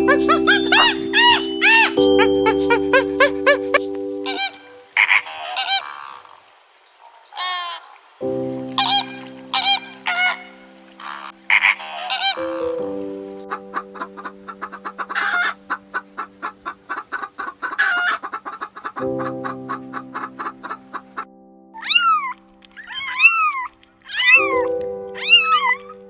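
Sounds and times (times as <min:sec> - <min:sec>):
sustained music chord: 0:00.0 - 0:05.0, 0:08.3 - 0:11.6, 0:12.4 - 0:16.8
flamingos honking: 0:00.0 - 0:06.2, 0:07.4 - 0:21.2
quail calling: 0:04.3 - 0:06.3, 0:07.0 - 0:08.0, 0:08.8 - 0:21.2, 0:21.8 - 0:26.0.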